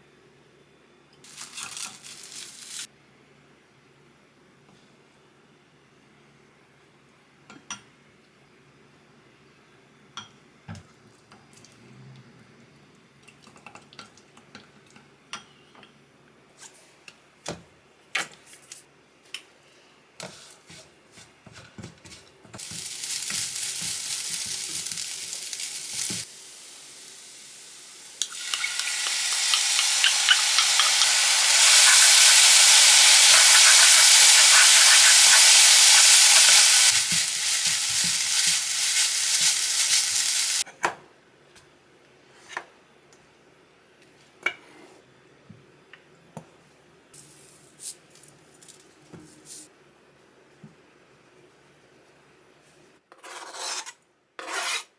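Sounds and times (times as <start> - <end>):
food sizzling in a pan: 1.2 - 2.9, 22.6 - 40.6
kitchen utensils clinking: 1.3 - 2.9, 28.3 - 40.6.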